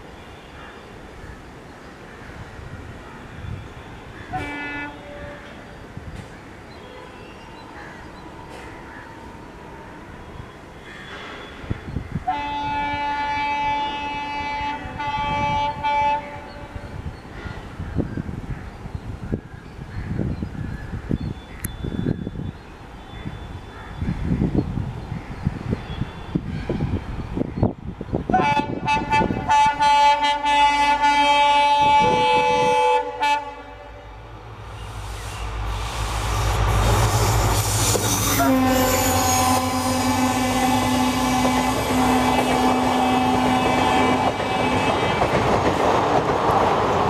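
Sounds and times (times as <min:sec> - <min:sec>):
train rumbling: 0:01.1 - 0:19.4, 0:22.0 - 0:47.0
locomotive air horn: 0:04.3 - 0:05.6, 0:12.3 - 0:17.0, 0:28.3 - 0:34.2, 0:34.8 - 0:45.2
train rhythmic knocking: 0:36.5 - 0:47.0.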